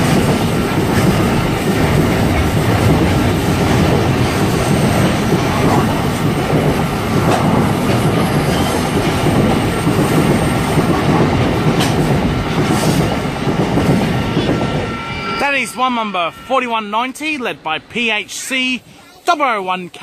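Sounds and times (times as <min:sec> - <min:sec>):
train wheels rumbling on rails: 0:00.0 - 0:15.7.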